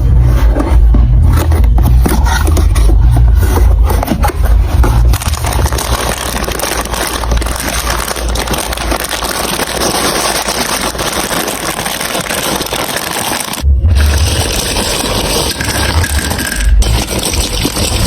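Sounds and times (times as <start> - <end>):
marbles clattering on plastic track: 5.1 - 18.0.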